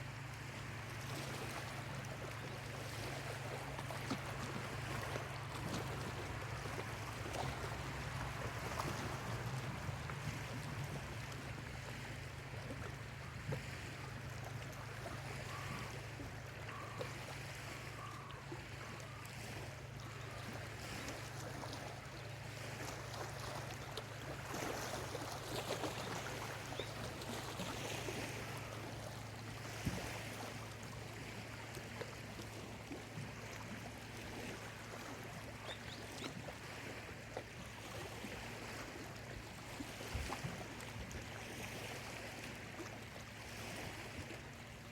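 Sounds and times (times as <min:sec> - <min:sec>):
lake waves lapping on shore: 0:00.0 - 0:44.9
faint bird calls: 0:15.0 - 0:19.3, 0:35.6 - 0:36.4.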